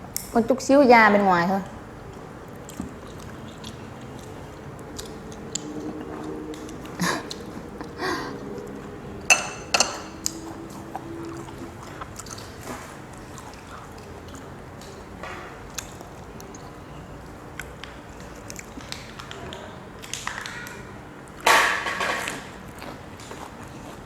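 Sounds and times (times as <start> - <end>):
person chewing: 2.0 - 19.4, 22.6 - 24.0.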